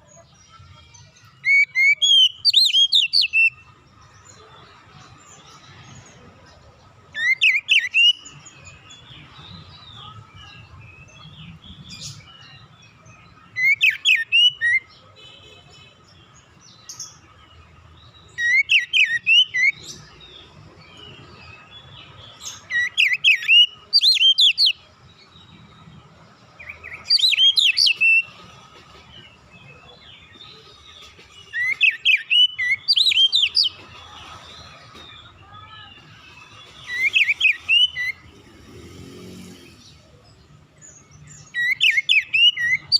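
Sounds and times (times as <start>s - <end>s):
bird singing whistled phrases: 1.4s - 3.6s, 31.5s - 33.8s.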